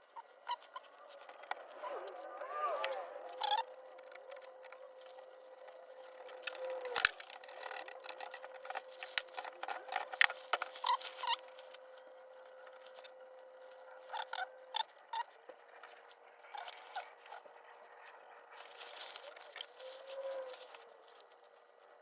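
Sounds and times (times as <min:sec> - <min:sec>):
faint steady hum: 0:00.0 - 0:22.0
metal gear parts clicking: 0:05.6 - 0:11.5.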